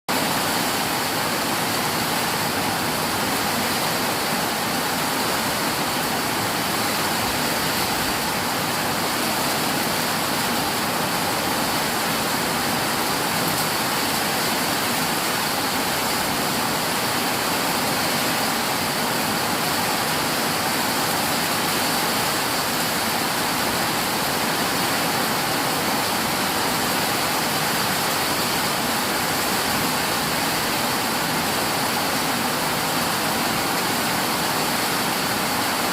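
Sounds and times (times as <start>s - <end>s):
heavy rain pouring: 0.1s - 35.9s.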